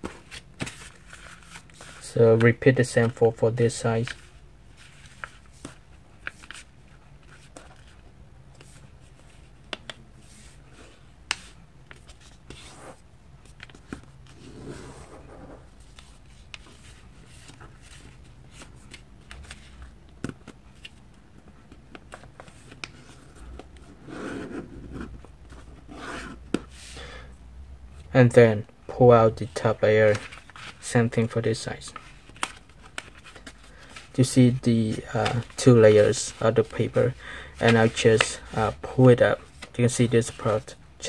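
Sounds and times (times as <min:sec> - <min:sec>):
soft paper rustles: 0:00.0 - 0:25.9, 0:29.4 - 0:40.8.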